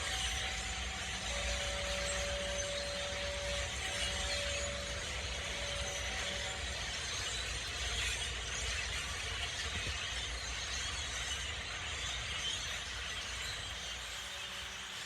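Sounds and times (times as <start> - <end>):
flock of birds chattering: 0.0 - 15.0.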